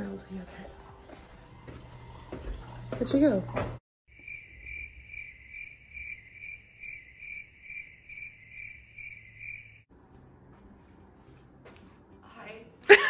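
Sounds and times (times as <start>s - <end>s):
cricket chirping: 4.1s - 9.8s.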